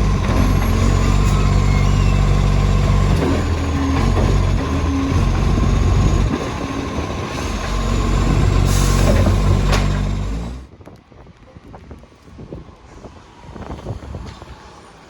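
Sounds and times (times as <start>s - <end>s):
truck engine running: 0.0s - 10.7s.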